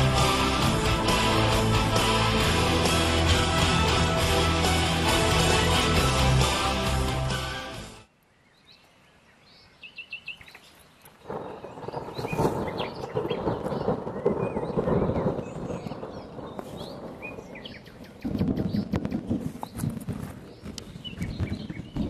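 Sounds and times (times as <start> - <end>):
birds chirping: 8.1 - 22.0
rolling thunder: 11.3 - 22.0.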